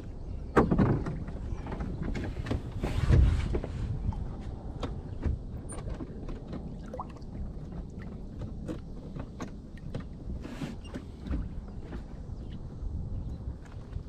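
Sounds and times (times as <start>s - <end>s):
steady low rumble: 3.2s - 10.4s
light clicks and knocks: 7.6s - 12.6s.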